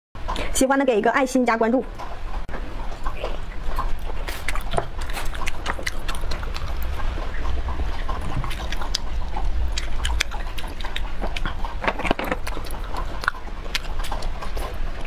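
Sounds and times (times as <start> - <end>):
wet chewing and mouth smacks: 3.0 - 15.0.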